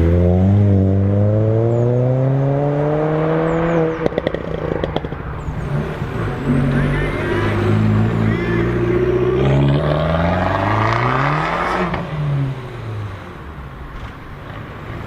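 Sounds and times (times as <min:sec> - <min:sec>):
another car engine: 0:00.0 - 0:15.0
car engine accelerating: 0:00.0 - 0:15.0
exhaust crackles: 0:03.8 - 0:15.0.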